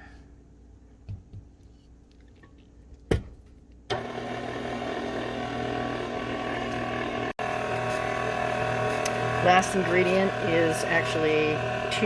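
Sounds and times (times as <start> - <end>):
electric mixer running: 3.9 - 12.0.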